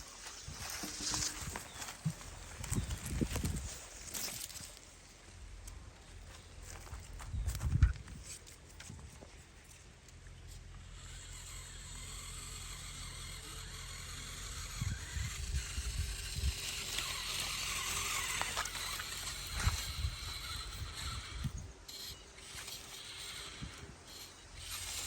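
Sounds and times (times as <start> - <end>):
toy tractor motor hum: 0.0 - 4.8, 5.4 - 25.0
scraping in soil: 0.0 - 5.0, 15.0 - 21.2
faint ticks and scrapes: 0.0 - 25.0.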